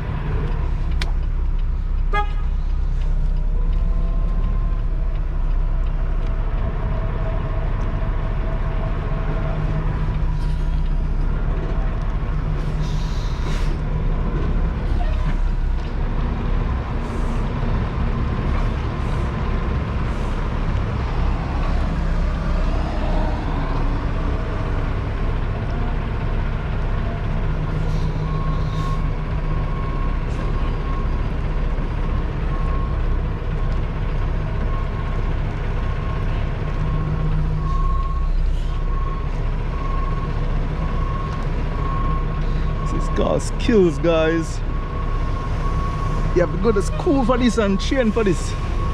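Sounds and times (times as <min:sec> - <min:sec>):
diesel truck engine running: 0:00.0 - 0:48.9
air brake hisses: 0:12.6 - 0:13.8
backup alarm beeping: 0:44.8 - 0:48.9.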